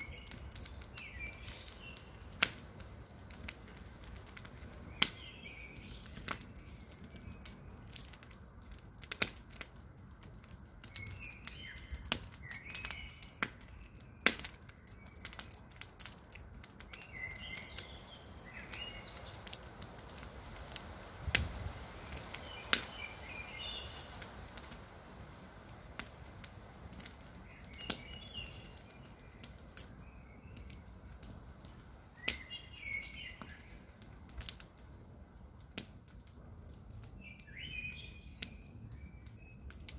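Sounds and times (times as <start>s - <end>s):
bird chirping: 0.0s - 2.2s, 16.9s - 19.4s, 22.4s - 24.3s, 27.5s - 29.4s, 32.2s - 34.0s
campfire crackling: 0.0s - 39.9s.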